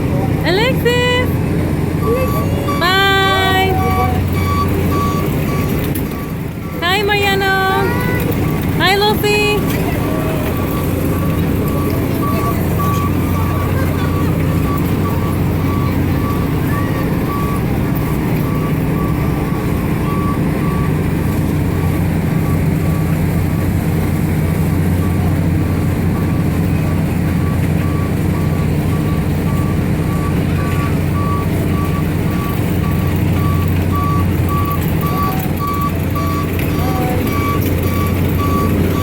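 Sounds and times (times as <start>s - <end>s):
ride mechanical drone: 0.0s - 39.0s
high electronic beep: 2.0s - 6.8s.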